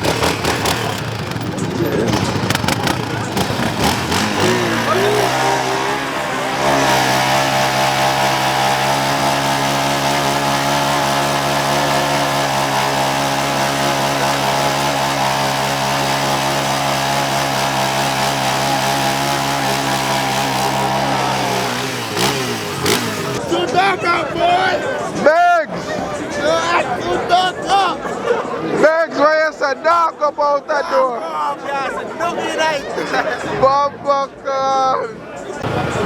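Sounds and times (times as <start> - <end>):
car engine revving high: 0.0 - 23.4.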